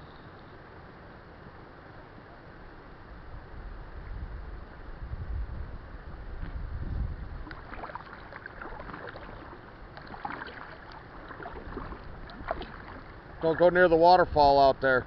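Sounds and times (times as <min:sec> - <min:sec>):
water dripping: 0:07.4 - 0:13.7
paddle splashing in water: 0:07.4 - 0:14.1.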